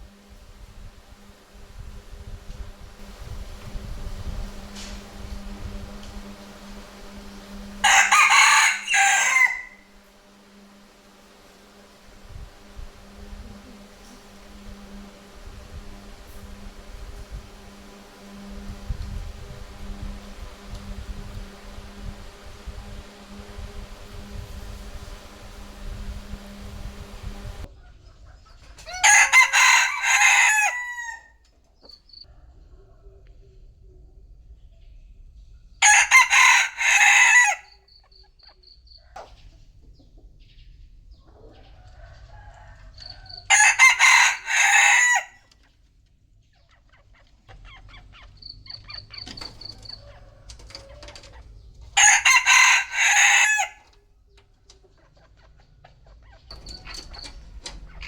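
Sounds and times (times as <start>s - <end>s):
rooster crowing: 5.8s - 10.1s, 28.8s - 31.4s, 35.8s - 37.9s, 41.5s - 45.5s, 49.4s - 51.3s, 52.0s - 54.0s
faint high-pitched peeps: 37.7s - 39.5s, 46.4s - 51.4s.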